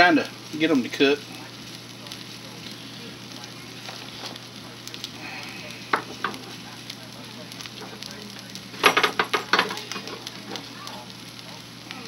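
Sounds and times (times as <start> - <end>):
potato cakes sizzling in pan: 0.0 - 12.0
metal pan clatter: 8.8 - 10.2.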